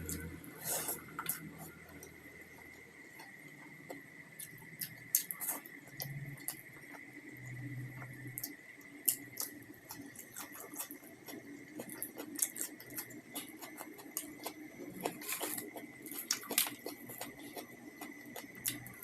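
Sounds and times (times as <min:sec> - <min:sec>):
person chewing food: 0:00.0 - 0:07.0, 0:08.0 - 0:19.0.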